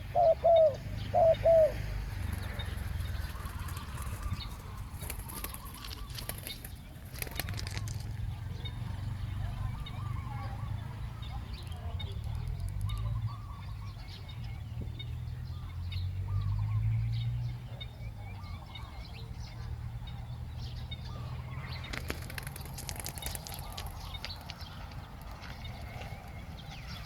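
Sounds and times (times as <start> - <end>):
birds calling: 0.0 - 27.0
sharp clicks and rustling: 3.3 - 8.3, 21.8 - 26.4.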